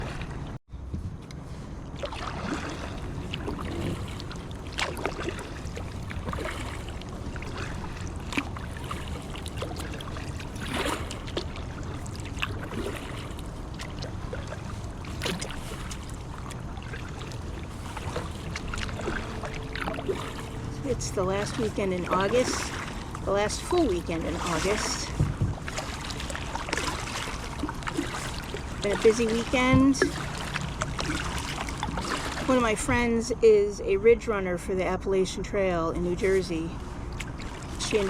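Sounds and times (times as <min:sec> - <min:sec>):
paddle splashing in water: 0:00.0 - 0:00.6, 0:01.9 - 0:33.2, 0:37.1 - 0:38.0
low rumble: 0:00.0 - 0:29.2.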